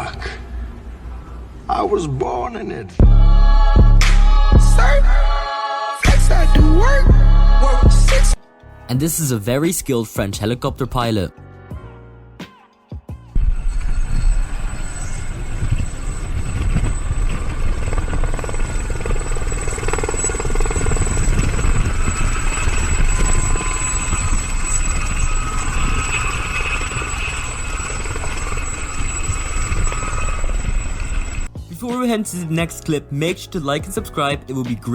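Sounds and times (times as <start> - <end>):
helicopter rotor and turbine: 13.4 - 31.5
high-pitched whine: 13.4 - 31.5.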